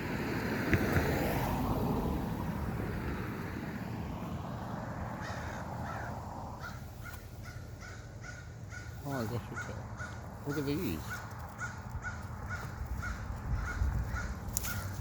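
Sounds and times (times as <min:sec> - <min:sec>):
crows cawing: 0:05.2 - 0:15.0.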